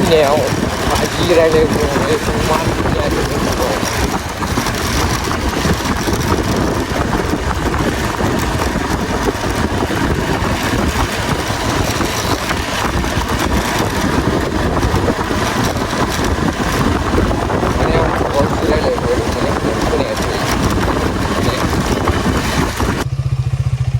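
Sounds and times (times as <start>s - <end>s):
vehicle engine running: 0.0s - 23.9s.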